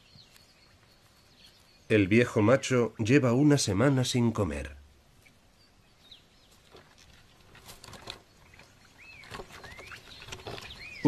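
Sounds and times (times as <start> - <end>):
bird chirps: 0.0 - 2.6, 8.0 - 11.0.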